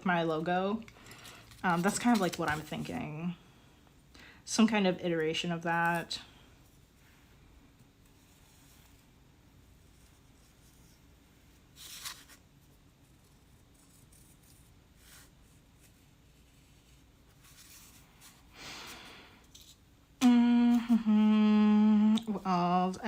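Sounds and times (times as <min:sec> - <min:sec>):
soft handling rustles: 0:05.7 - 0:18.5
person humming: 0:20.2 - 0:22.7.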